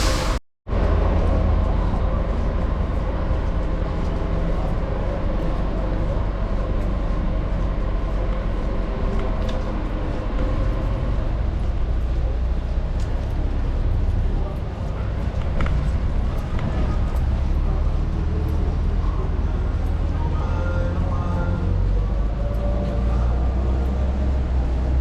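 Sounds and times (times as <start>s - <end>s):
city street traffic rumble: 0.0s - 25.0s
large vehicle running close: 0.0s - 25.0s.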